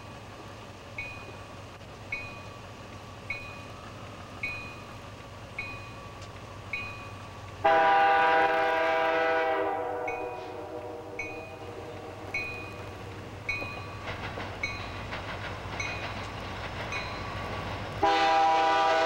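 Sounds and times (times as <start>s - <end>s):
crossing warning bell dinging: 0.0s - 19.0s
locomotive air horn: 7.6s - 12.3s, 18.0s - 19.0s.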